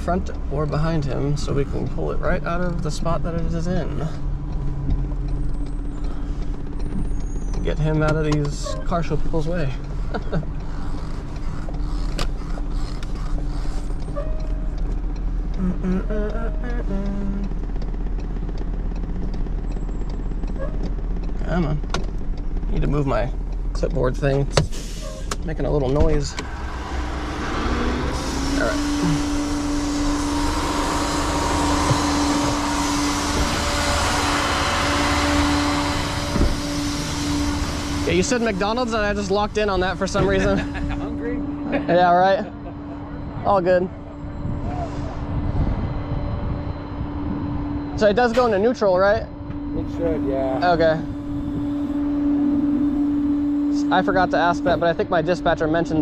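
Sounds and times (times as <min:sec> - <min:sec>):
low engine drone: 0:00.0 - 0:56.0
truck cab creaks and squeaks: 0:03.5 - 0:15.8, 0:17.5 - 0:40.9.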